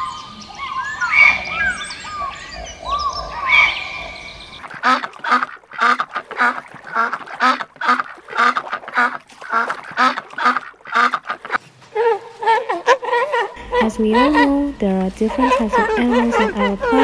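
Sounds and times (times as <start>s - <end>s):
ducks quacking: 1.1s - 11.6s, 12.2s - 17.0s.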